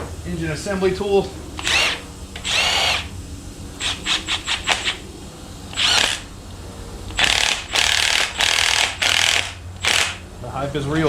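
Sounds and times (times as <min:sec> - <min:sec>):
handheld power tool bursts: 0:01.6 - 0:03.1, 0:03.8 - 0:05.0, 0:05.7 - 0:06.3, 0:07.1 - 0:10.2.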